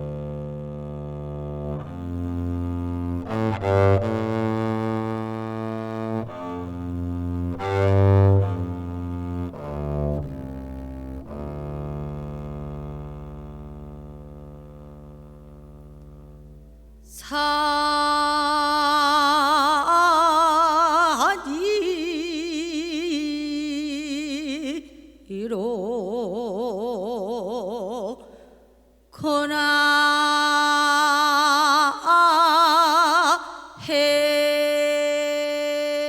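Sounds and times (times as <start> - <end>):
low bowed instrument: 0.0 - 24.8.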